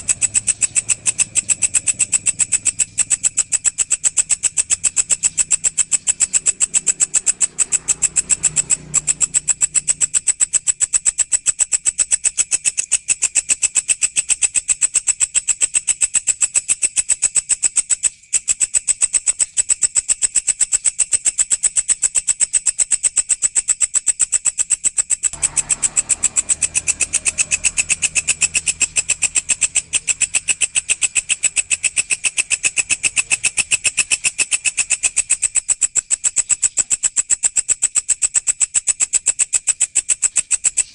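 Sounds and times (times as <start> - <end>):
insect chirping: 0.0 - 40.9
low hum: 25.4 - 34.0.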